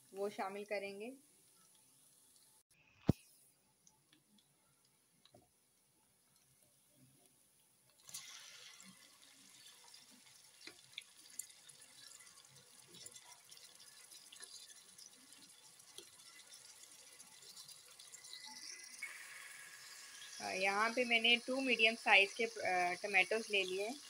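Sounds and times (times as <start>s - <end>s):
tomatoes sizzling in hot oil: 0.0s - 2.7s, 8.0s - 24.0s
paste frying in oil: 7.9s - 24.0s.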